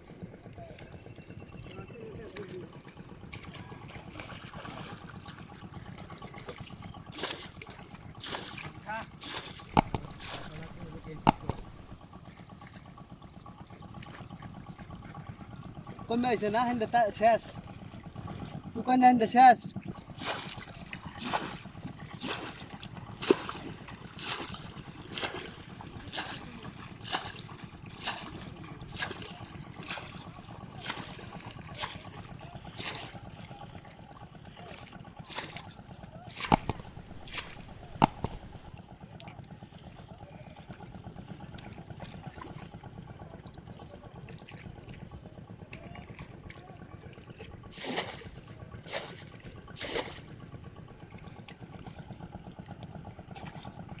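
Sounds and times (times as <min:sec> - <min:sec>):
steady low hum: 0:09.8 - 0:12.0, 0:36.5 - 0:38.8
water splashing: 0:09.8 - 0:12.0, 0:36.5 - 0:38.7.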